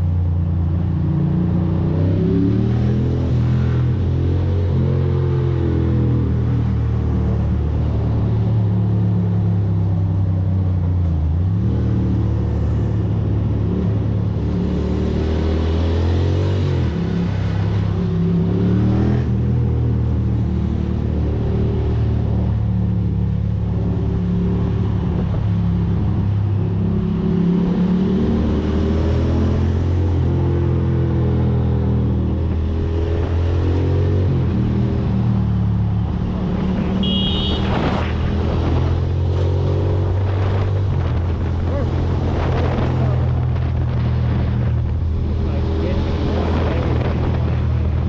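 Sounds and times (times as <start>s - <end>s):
wind and road noise: 0.0s - 48.0s.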